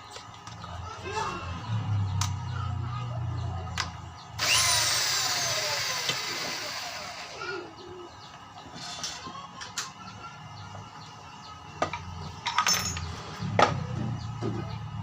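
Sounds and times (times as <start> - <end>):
blower fan rushing air: 1.6 - 8.5.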